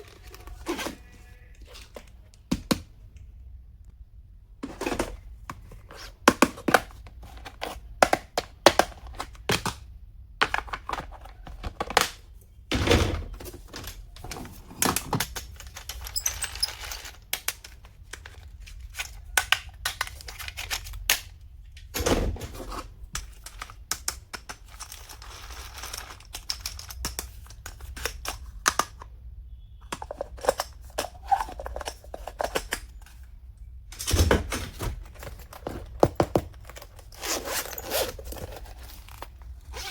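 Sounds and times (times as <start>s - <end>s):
clicks and knocks of handled stationery: 23.1s - 29.0s
packaging rustling: 34.8s - 39.9s.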